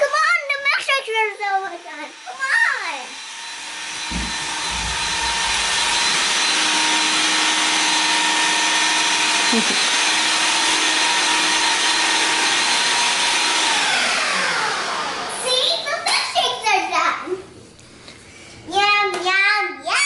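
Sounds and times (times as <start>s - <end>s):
electric blender motor whine: 1.5s - 15.5s.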